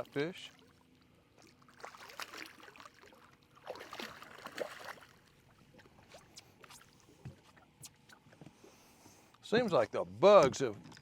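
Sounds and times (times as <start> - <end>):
water splashing: 1.4 - 7.0.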